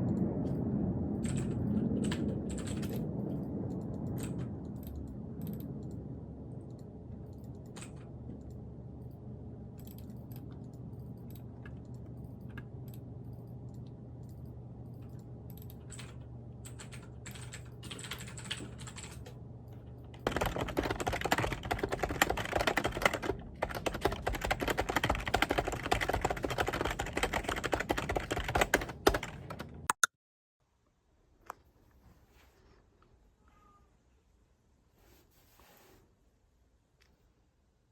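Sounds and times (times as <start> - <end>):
steady low hum: 0.0 - 29.9
typing on computer keyboard: 1.2 - 6.0, 6.7 - 8.2, 15.0 - 19.4, 20.1 - 29.9.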